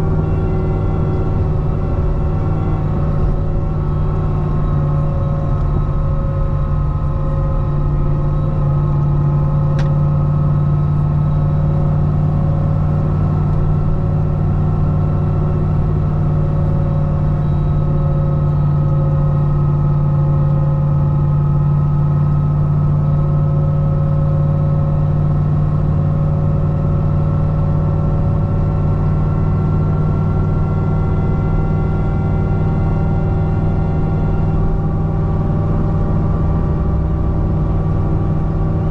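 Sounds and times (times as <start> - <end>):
car engine cruising drone: 0.0 - 38.9.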